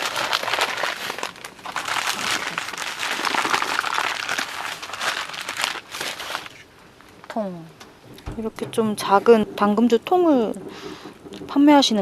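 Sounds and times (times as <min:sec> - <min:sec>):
packaging crinkling: 0:00.0 - 0:07.3.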